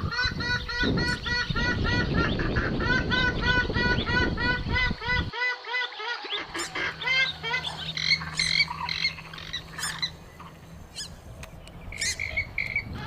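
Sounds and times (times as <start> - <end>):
swamphen calling: 0.0 - 13.0
faint steady hum: 6.3 - 13.0.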